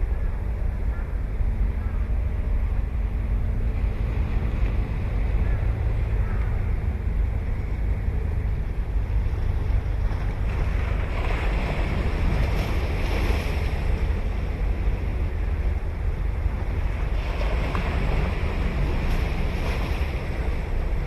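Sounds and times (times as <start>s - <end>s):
surf breaking on shore: 9.3s - 21.0s.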